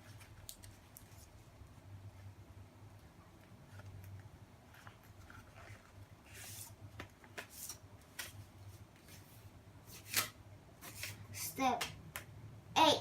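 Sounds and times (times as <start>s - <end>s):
paper rustling and crinkling: 3.7s - 11.2s.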